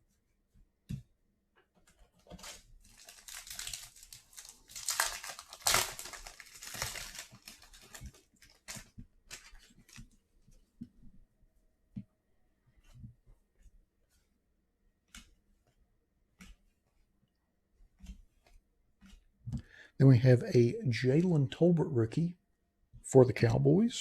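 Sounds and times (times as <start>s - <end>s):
wrapper tearing and crinkling: 2.3s - 10.0s.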